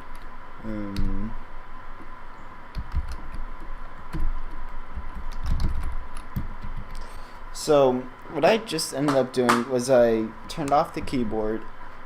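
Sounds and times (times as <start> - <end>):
keyboard typing clicks: 4.1 - 7.0.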